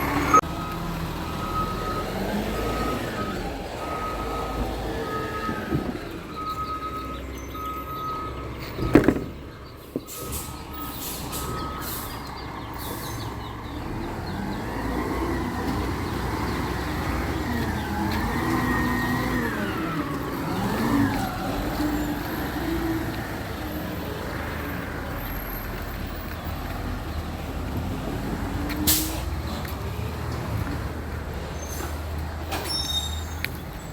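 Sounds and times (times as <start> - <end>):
truck reversing beeper: 0.0 - 26.4
truck engine running: 0.0 - 32.5.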